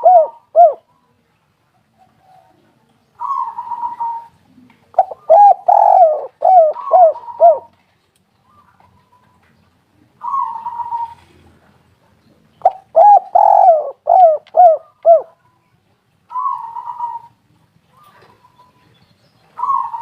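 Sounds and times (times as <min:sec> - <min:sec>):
dove cooing: 0:00.0 - 0:00.9, 0:02.0 - 0:07.8, 0:10.1 - 0:11.4, 0:12.6 - 0:15.4, 0:16.3 - 0:18.7, 0:19.6 - 0:20.0.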